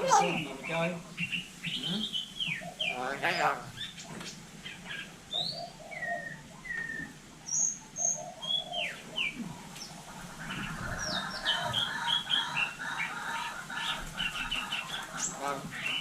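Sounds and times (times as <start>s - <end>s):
bird buzzy chatter: 0.0s - 5.1s
myna bird whistling: 4.9s - 9.4s.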